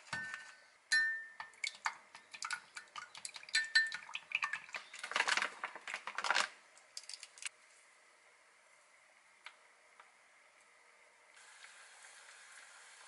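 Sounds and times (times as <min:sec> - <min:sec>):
chopsticks clinking against glass: 0:03.5 - 0:04.0
plastic packet crinkling: 0:04.7 - 0:07.5.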